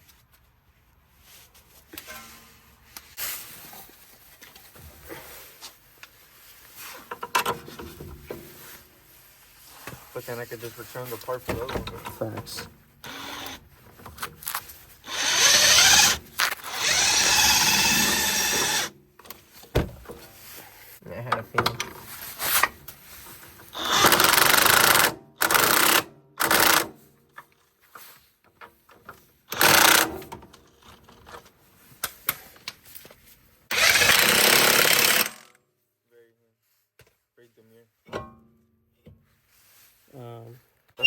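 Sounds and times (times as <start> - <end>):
handheld power tool spinning: 13.0 - 13.6, 15.0 - 19.0, 23.7 - 27.0, 29.5 - 30.3, 33.7 - 35.6
impact wrench running: 13.0 - 13.6, 15.0 - 19.0, 23.7 - 27.0, 29.5 - 30.3, 33.7 - 35.6.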